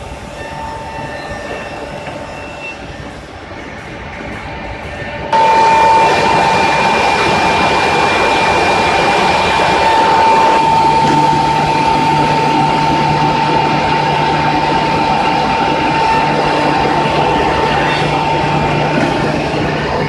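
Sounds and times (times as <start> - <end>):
low hum: 5.3 - 20.0
edge sanding machine whine: 5.4 - 19.9.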